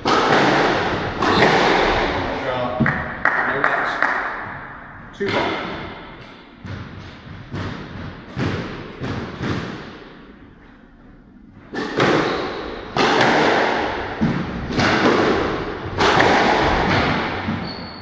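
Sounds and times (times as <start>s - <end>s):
ball slamming into walls: 0.0s - 10.4s, 11.7s - 18.0s
squash ball hitting rackets: 0.0s - 18.0s.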